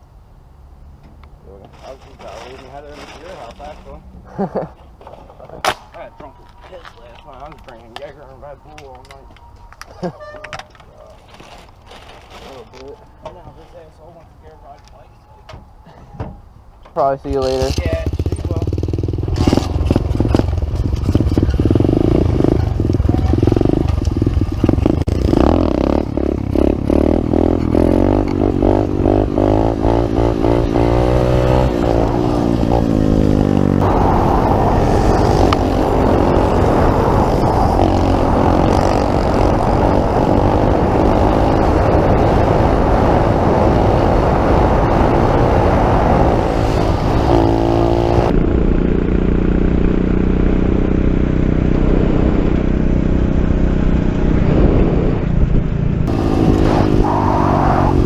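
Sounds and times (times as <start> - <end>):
motorbike engine revving: 17.4 - 58.0.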